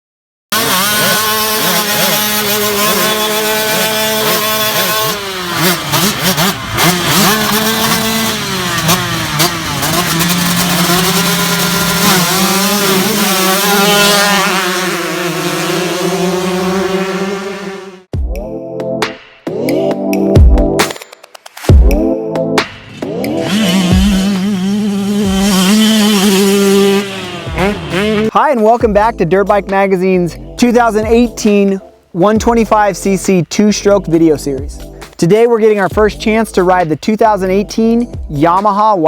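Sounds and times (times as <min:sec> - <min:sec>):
dirt bike engine revving: 0:00.5 - 0:18.1, 0:22.6 - 0:28.4.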